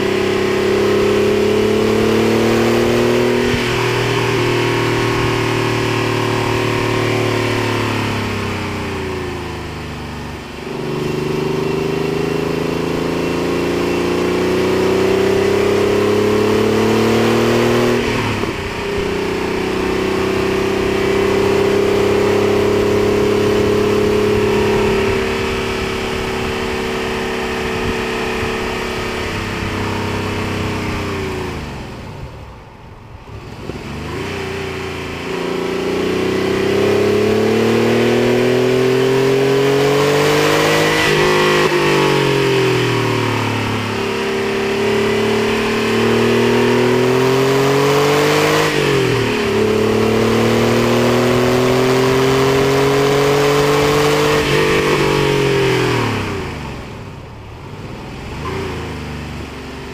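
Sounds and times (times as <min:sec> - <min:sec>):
car engine revving hard: 0:00.0 - 0:32.2, 0:33.2 - 0:59.9
wind rushing over microphone: 0:21.6 - 0:34.4.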